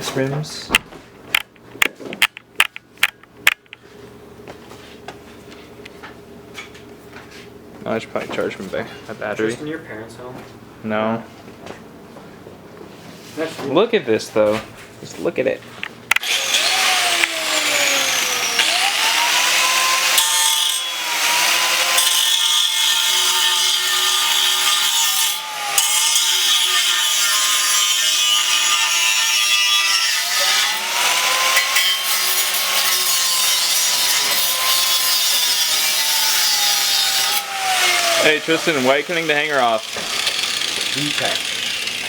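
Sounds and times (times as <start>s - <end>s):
power tool cutting metal: 16.2s - 42.0s.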